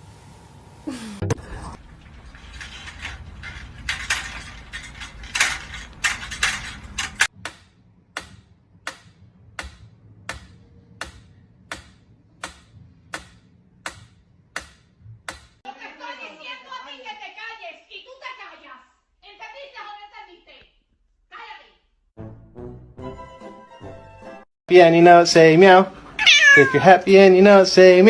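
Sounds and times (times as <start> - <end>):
rustling with clicks: 1.8 - 7.4.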